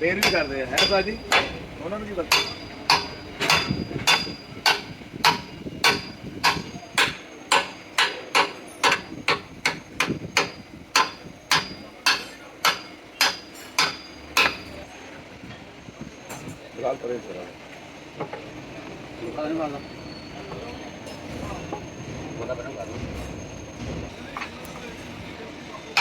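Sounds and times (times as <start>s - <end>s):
hammering on metal: 0.0s - 14.8s.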